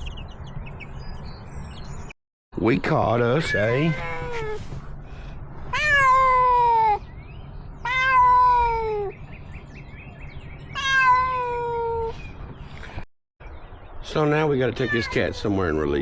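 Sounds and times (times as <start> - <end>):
cat meowing: 3.4 - 4.6, 5.7 - 7.0, 7.8 - 9.1, 10.8 - 12.2, 14.8 - 15.4.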